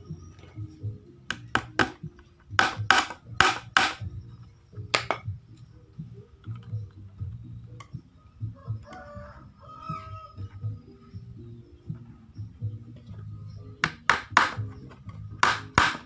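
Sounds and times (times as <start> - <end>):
hammer tapping: 1.3 - 2.0, 2.6 - 4.0, 5.0 - 5.2, 13.8 - 14.6, 15.4 - 16.0.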